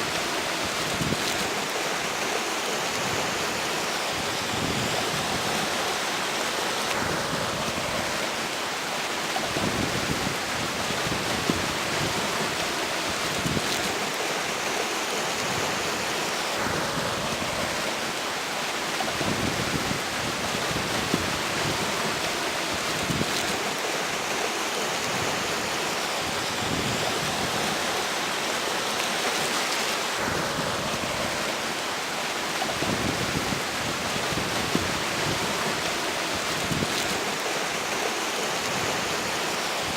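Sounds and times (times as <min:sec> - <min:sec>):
wind rumble on microphone: 0:00.0 - 0:01.6, 0:04.2 - 0:05.8, 0:09.4 - 0:14.2, 0:19.0 - 0:23.7, 0:26.2 - 0:27.9, 0:30.2 - 0:31.7, 0:32.6 - 0:37.4
river flowing: 0:00.0 - 0:39.9.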